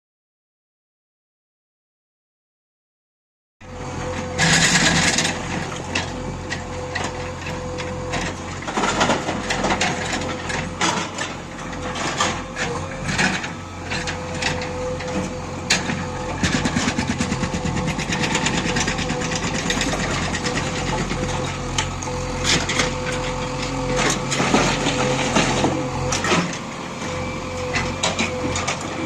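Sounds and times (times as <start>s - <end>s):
diesel engine humming: 3.6s - 29.0s
hydraulic rock breaker hammering: 8.6s - 26.7s.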